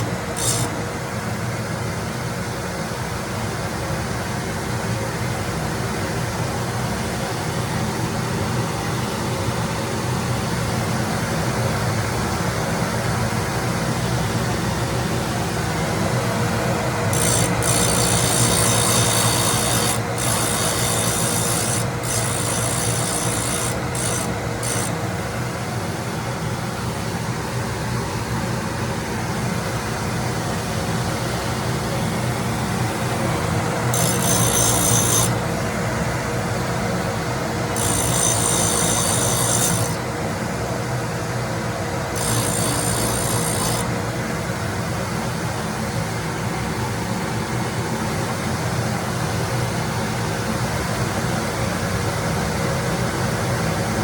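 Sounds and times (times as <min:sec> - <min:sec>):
grinding wheel hissing on metal: 0:00.0 - 0:00.8, 0:15.8 - 0:25.0, 0:32.1 - 0:35.6, 0:37.6 - 0:40.0, 0:42.1 - 0:44.0
grinder motor running: 0:00.0 - 0:00.9, 0:15.2 - 0:25.5, 0:30.6 - 0:40.2, 0:42.0 - 0:44.2.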